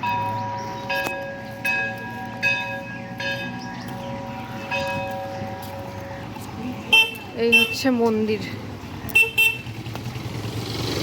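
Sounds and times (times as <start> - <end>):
metal temple bells ringing: 0.0 - 6.3.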